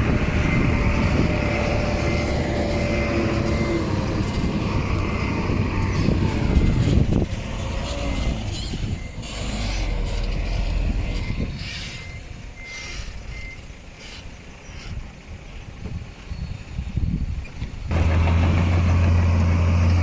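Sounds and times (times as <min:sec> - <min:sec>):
diesel engine rumble: 0:00.0 - 0:20.0
reversing alarm beeps: 0:08.1 - 0:10.1, 0:11.1 - 0:13.7.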